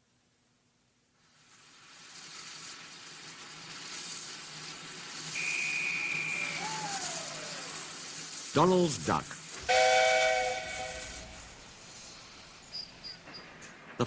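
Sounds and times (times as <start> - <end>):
steady hiss: 0.0 - 14.0
short high whistle: 5.3 - 7.8
falling tone: 5.4 - 7.9.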